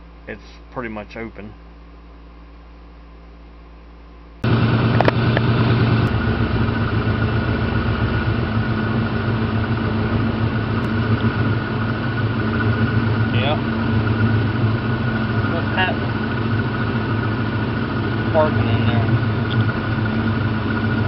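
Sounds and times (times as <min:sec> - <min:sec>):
faint hum: 0:00.0 - 0:21.0
car engine idling: 0:04.4 - 0:21.0.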